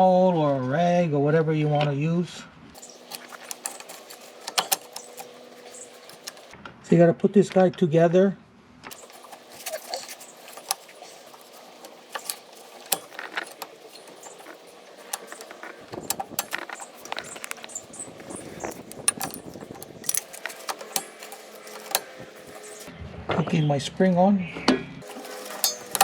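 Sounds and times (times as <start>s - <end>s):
metal parts clinking: 2.8s - 6.5s, 8.9s - 22.9s, 25.0s - 26.0s
metal scraping: 2.8s - 6.6s, 8.9s - 22.9s, 25.0s - 26.0s.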